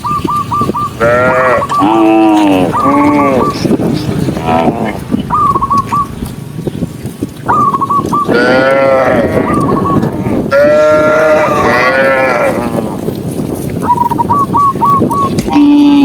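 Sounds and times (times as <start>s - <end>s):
cattle mooing loudly: 1.0s - 3.7s, 4.4s - 5.1s, 8.3s - 13.1s, 15.4s - 16.0s
short high warbling calls: 7.5s - 8.4s.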